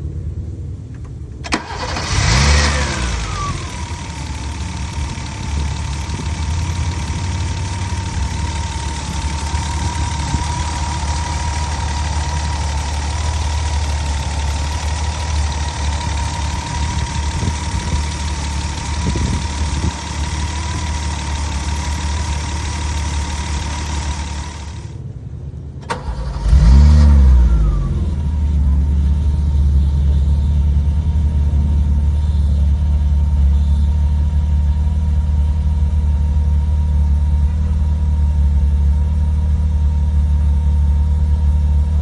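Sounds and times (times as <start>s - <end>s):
car engine idling: 0.0s - 25.1s, 25.8s - 42.0s
engine revving: 1.4s - 25.0s, 25.9s - 30.5s.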